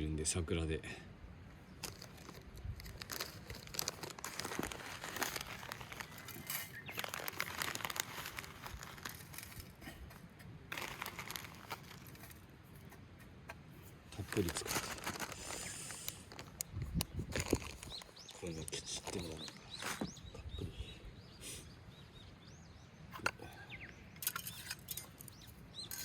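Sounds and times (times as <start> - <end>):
packet crinkling: 1.8 - 9.8, 10.7 - 12.4, 14.1 - 20.1.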